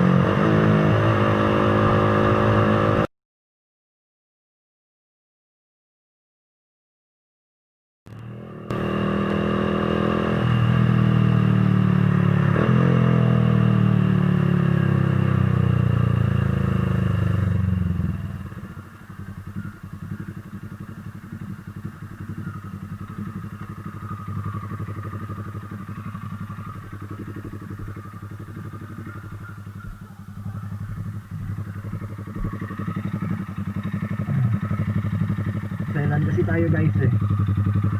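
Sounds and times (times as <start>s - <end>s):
motorcycle engine revving: 0.0s - 3.1s, 8.1s - 37.9s
motorcycle engine idling: 13.6s - 37.9s.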